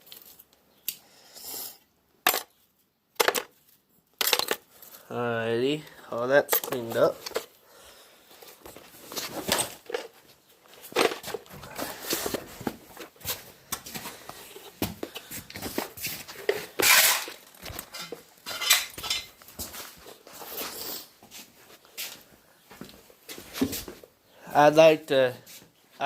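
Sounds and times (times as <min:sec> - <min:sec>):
small hard objects clinking: 0:03.2 - 0:05.0, 0:16.5 - 0:19.4.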